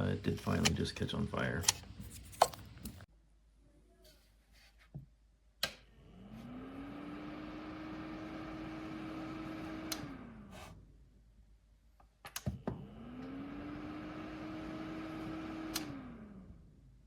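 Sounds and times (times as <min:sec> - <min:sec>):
space heater fan humming: 0:00.0 - 0:03.1, 0:05.6 - 0:11.0, 0:12.3 - 0:17.0.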